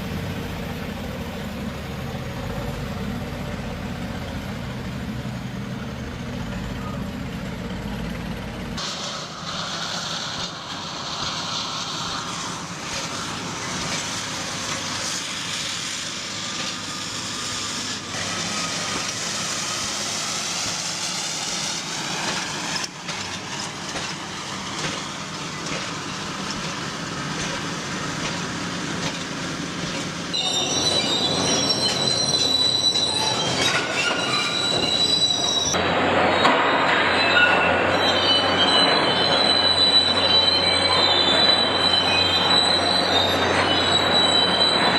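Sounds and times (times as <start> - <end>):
high steady squeal: 30.3 - 35.8, 36.4 - 44.9.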